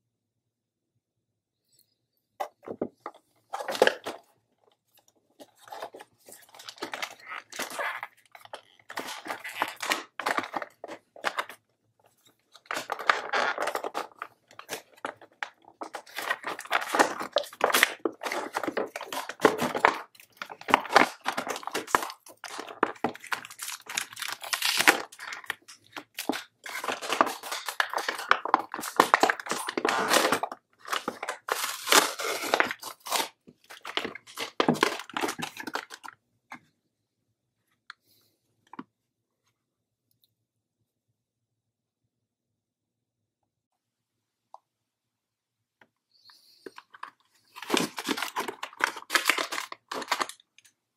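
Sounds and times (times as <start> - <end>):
packaging tearing and crinkling: 5.6 - 11.6, 12.5 - 36.1, 47.0 - 50.7.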